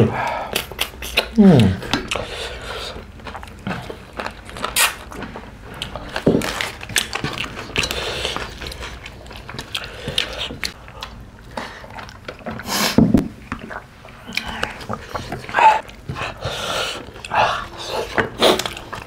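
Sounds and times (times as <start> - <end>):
chewing and lip smacking: 0.3 - 19.0
clicks and crackles of food: 3.2 - 17.3, 18.0 - 19.0.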